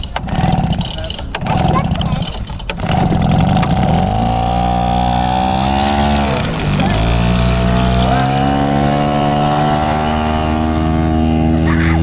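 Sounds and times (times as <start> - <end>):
small outboard motor running: 2.7 - 12.0.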